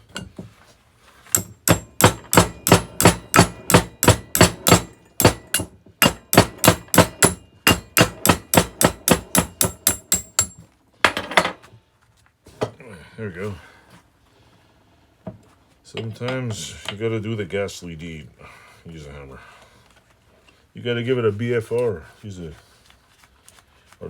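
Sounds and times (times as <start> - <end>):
hammer striking steel vise: 0.0 - 0.4, 1.3 - 11.4.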